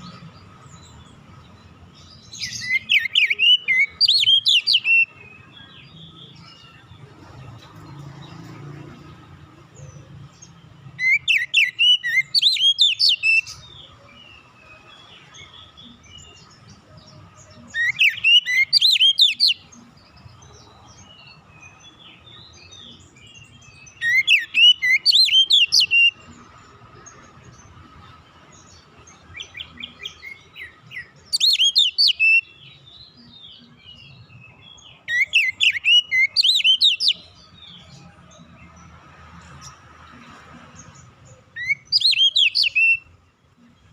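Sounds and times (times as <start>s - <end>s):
bird whistled song: 2.0s - 6.8s, 10.9s - 16.7s, 17.6s - 20.1s, 21.0s - 26.3s, 29.3s - 37.9s, 41.5s - 43.2s.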